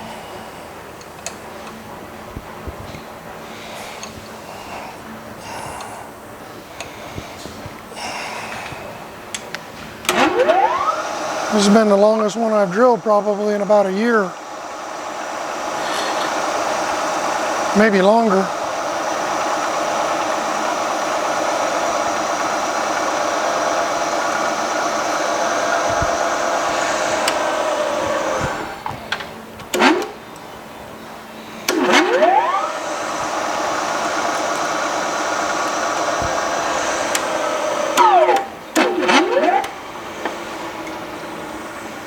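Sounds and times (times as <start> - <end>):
machine clunk: 10.0 - 30.5, 31.6 - 41.0
milling machine drilling steel: 10.1 - 30.3, 31.6 - 41.3
rising machine whine: 10.1 - 42.0.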